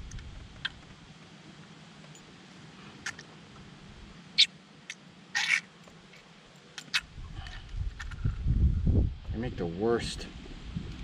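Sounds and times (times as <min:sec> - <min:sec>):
fish making squeaky sucking noises: 0:04.4 - 0:05.7.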